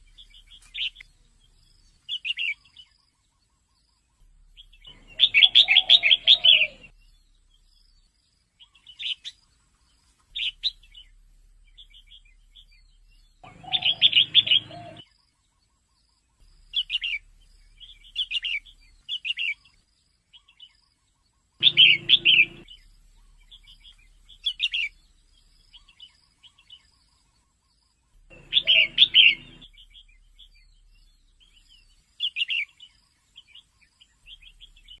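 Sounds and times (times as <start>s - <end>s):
bird rapid chattering calls: 4.8s - 6.9s, 13.4s - 15.0s, 21.6s - 25.0s, 28.3s - 30.6s
bird single chirps: 16.6s - 19.8s, 21.6s - 35.0s.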